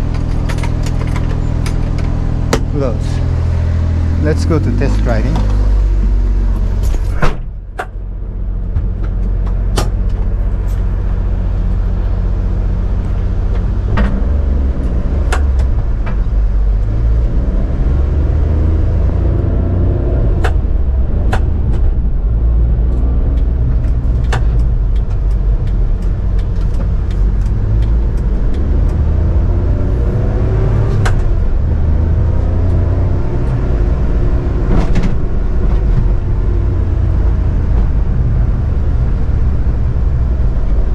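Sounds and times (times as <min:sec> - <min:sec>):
road and drivetrain noise: 0:00.0 - 0:40.9
truck engine accelerating: 0:00.0 - 0:40.9
sharp thump: 0:02.5 - 0:02.8, 0:06.8 - 0:07.9.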